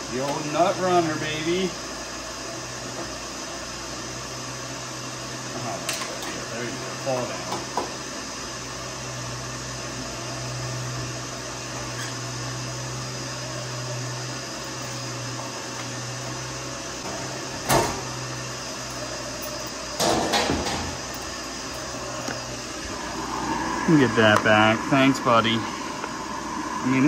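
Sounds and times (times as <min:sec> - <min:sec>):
electric motor humming: 0:06.3 - 0:27.0
rushing air: 0:21.5 - 0:27.0.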